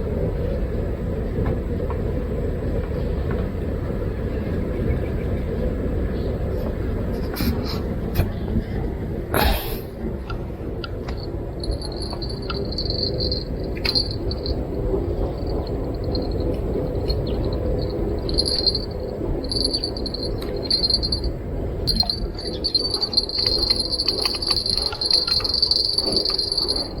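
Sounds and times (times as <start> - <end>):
insects trilling: 11.6 - 27.0.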